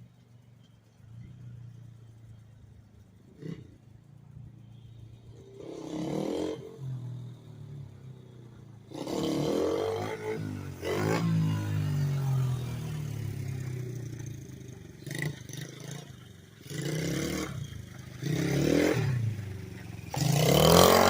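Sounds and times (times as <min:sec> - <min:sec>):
engine throttle bursts: 0:08.9 - 0:21.0.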